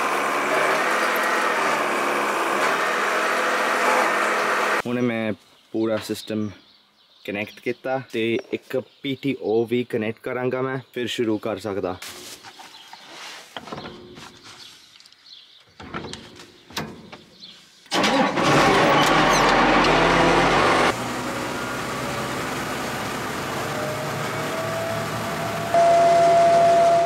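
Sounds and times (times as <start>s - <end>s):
tractor engine running: 0.0s - 4.8s, 17.9s - 27.0s.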